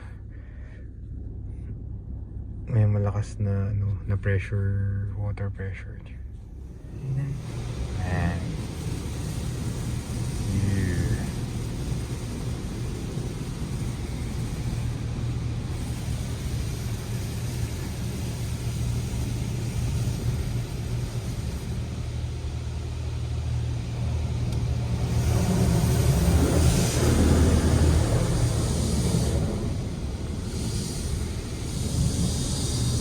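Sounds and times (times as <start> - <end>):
steady low hum: 0.0 - 33.0
high-pressure water spray on car: 7.4 - 33.0.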